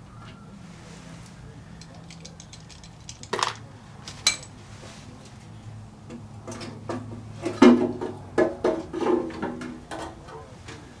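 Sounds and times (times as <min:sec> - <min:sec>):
metal tools clinking and clattering: 0:01.8 - 0:03.6, 0:04.2 - 0:04.6.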